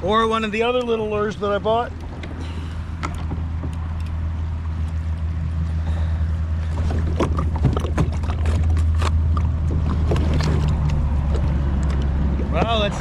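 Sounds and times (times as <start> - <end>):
rumble of moving water: 0.0 - 13.0
paddle knocks and splashes: 6.7 - 13.0.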